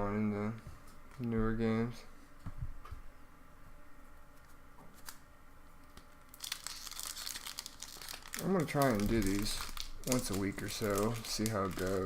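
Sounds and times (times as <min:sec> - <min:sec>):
foil wrapper tearing and crinkling: 0:06.0 - 0:12.0.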